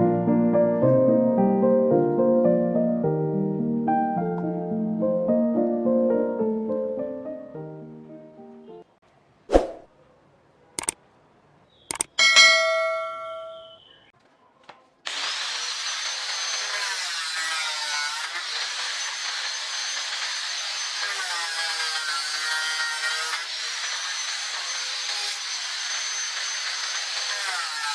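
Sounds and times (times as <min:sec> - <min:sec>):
metallic ding: 0:12.2 - 0:13.9
power tool whining on wood: 0:15.1 - 0:27.9.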